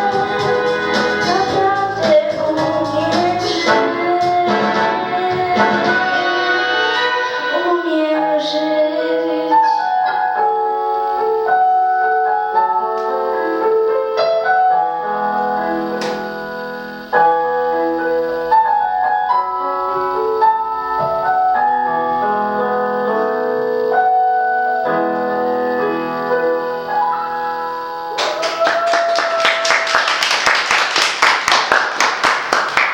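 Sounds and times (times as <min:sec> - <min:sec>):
woman singing: 0:00.0 - 0:10.2
piano playing: 0:00.0 - 0:28.2
audience applause: 0:28.1 - 0:32.9.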